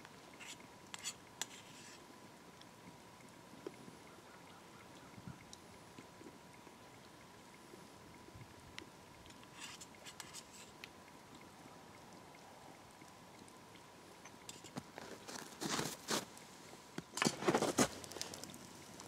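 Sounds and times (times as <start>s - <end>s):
rustling crunching: 14.6s - 16.4s, 17.2s - 18.6s.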